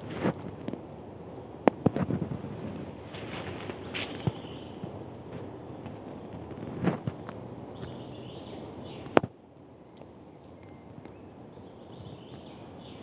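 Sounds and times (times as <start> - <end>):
low background rumble: 0.0 - 9.8
songbird warbling: 2.7 - 5.0.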